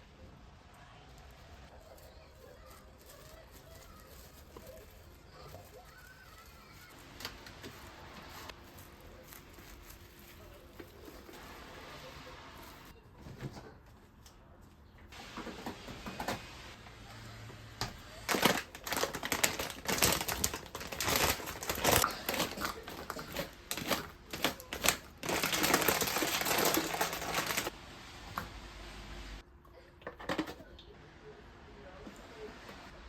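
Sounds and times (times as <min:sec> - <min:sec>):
crinkling rustles: 0:01.4 - 0:14.4, 0:18.1 - 0:27.8.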